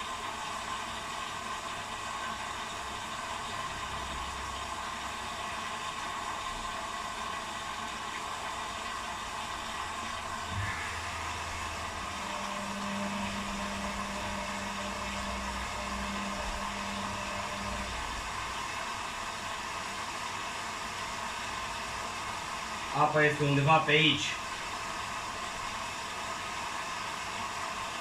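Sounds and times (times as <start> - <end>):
washing machine drum whirring: 0.0 - 28.0
low hum: 10.2 - 18.6.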